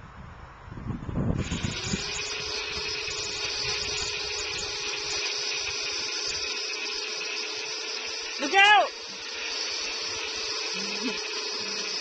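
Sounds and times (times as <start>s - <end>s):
wind rumbling on microphone: 0.0s - 5.9s
hissing noise: 1.3s - 12.0s
chainsaw engine running: 1.4s - 12.0s.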